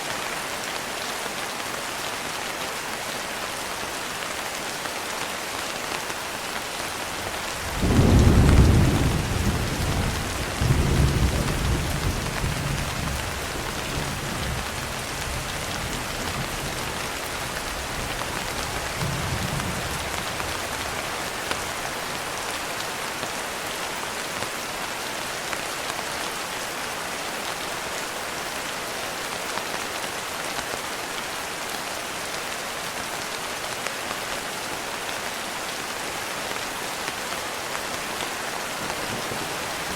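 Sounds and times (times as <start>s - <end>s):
heavy rain: 0.0s - 39.9s
thunder claps and rumbles: 7.4s - 21.7s, 38.8s - 39.9s.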